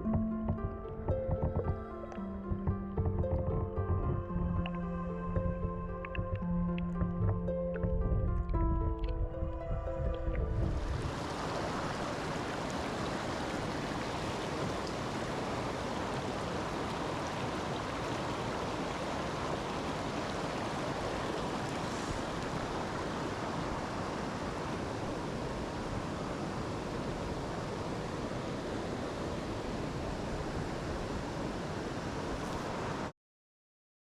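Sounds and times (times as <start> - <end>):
stream water rushing: 1.3 - 33.1.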